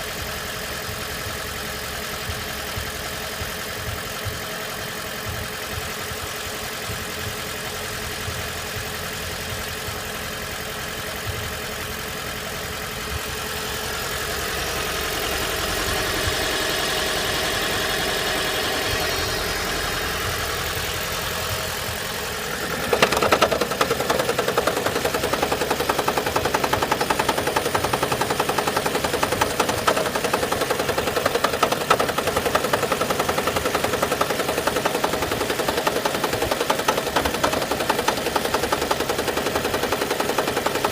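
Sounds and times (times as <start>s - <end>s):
car engine hum: 0.0s - 40.9s
rapid even engine knocking: 2.0s - 40.9s.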